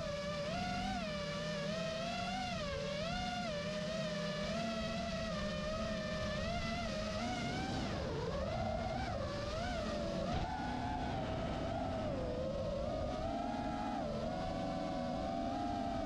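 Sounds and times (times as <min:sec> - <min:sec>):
low wind rumble: 0:07.2 - 0:15.4.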